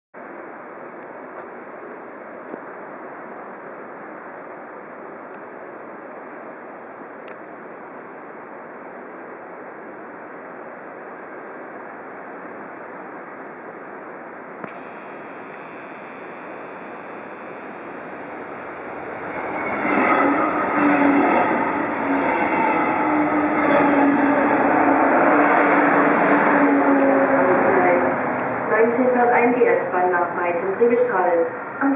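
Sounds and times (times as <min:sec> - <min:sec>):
station noise: 0:00.2 - 0:31.9
train pulling in humming: 0:00.2 - 0:31.9
high wheel squeal: 0:17.5 - 0:27.5.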